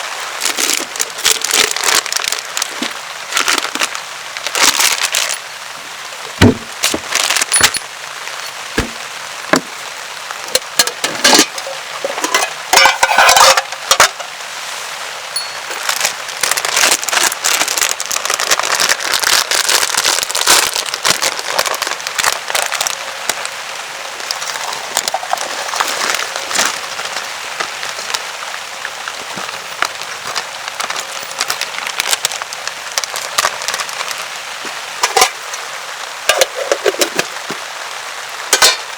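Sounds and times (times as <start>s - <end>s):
rain pattering on a tarp: 0.0s - 38.9s
sharp clicks and cracks: 28.8s - 34.2s.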